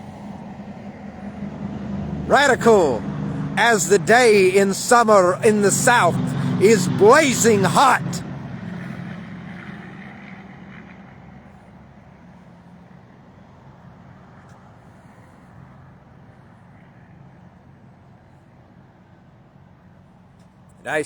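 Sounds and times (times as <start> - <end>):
vehicle engine and tyre noise: 0.0 - 3.7, 5.7 - 17.8.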